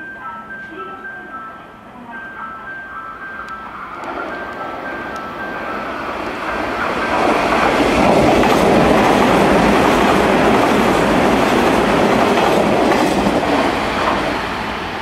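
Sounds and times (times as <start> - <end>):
train wheels rumbling on rail: 3.9 - 15.0.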